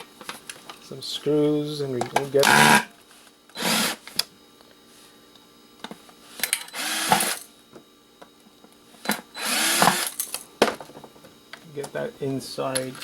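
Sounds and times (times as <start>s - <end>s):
power driver whirring: 3.5s - 4.2s, 6.6s - 7.5s, 9.3s - 10.3s.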